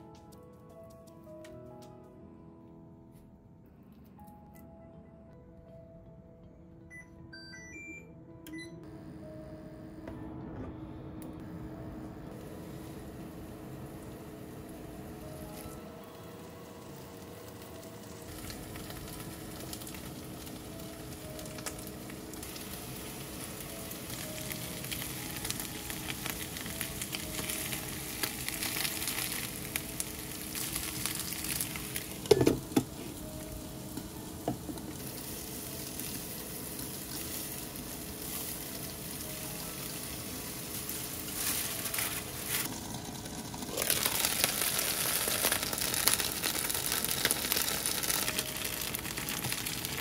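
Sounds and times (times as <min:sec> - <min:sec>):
meat sizzling in frying pans: 0:16.4 - 0:50.0.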